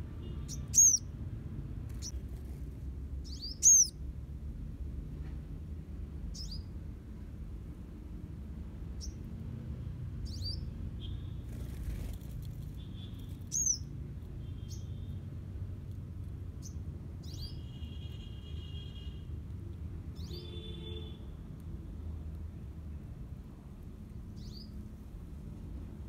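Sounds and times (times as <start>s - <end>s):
small birds chirping: 0.0s - 4.1s, 6.2s - 6.8s, 8.9s - 15.2s, 16.3s - 18.3s, 20.0s - 20.6s, 24.1s - 24.9s.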